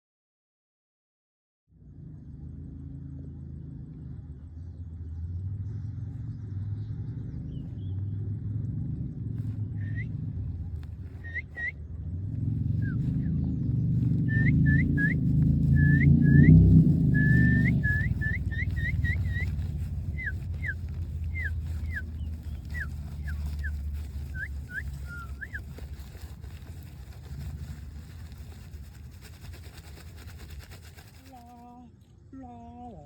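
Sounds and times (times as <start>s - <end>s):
low rumble: 1.7s - 32.1s
high whistled chirps: 11.2s - 11.8s, 14.2s - 25.7s.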